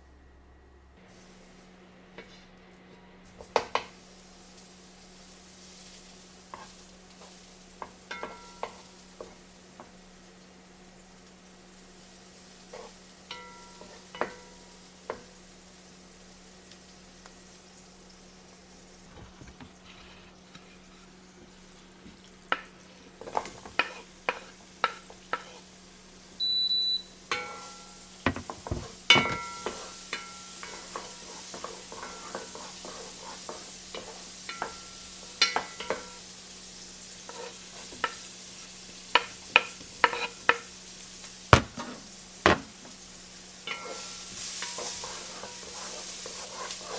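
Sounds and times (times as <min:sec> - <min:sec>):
food sizzling in a pan: 0:01.0 - 0:02.5, 0:03.2 - 0:46.9
short electronic beep: 0:26.4 - 0:27.1
utensil knocking against pan: 0:28.3 - 0:30.8, 0:41.5 - 0:42.9.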